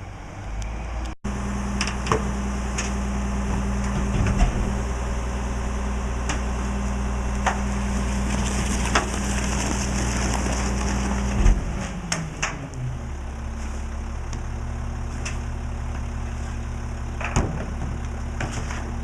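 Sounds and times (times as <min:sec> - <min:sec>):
garbage truck diesel engine: 0:00.0 - 0:19.0
trash cracking being crushed: 0:07.4 - 0:12.6.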